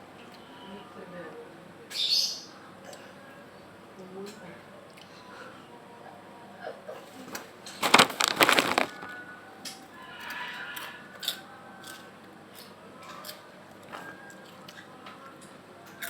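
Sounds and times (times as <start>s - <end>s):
crunching crisp snack: 7.8s - 9.2s
soft crackles and clicks: 7.8s - 9.2s.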